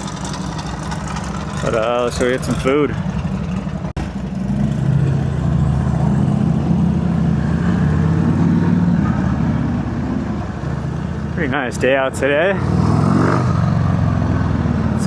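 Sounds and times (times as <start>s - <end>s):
motorcycle engine running: 0.0s - 6.7s.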